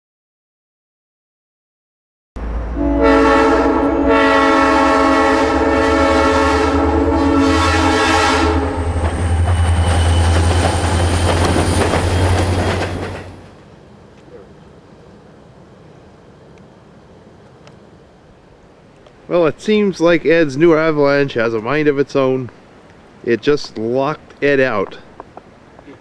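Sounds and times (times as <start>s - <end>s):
air horn chord: 2.4s - 9.0s.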